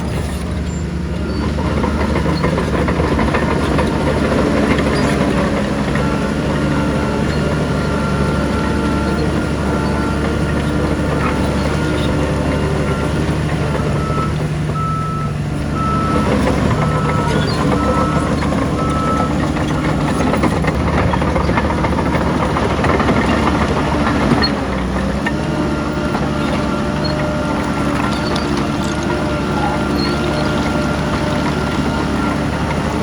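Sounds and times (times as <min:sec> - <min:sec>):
heavy machinery diesel engine: 0:00.0 - 0:33.0
reversing alarm beeping: 0:00.7 - 0:24.6.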